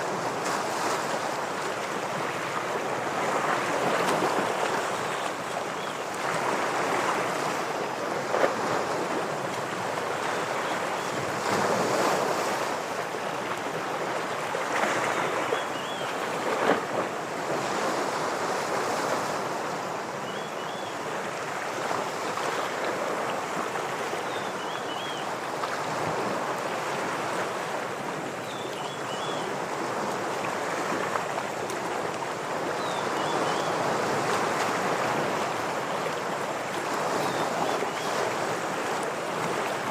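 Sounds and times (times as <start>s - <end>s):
ocean waves washing against rocks: 0.0s - 15.5s.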